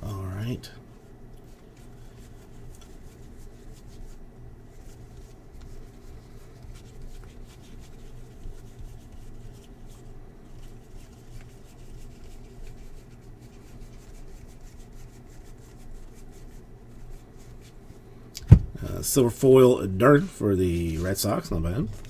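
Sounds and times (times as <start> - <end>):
steady low hum: 0.0 - 6.6, 16.7 - 22.0.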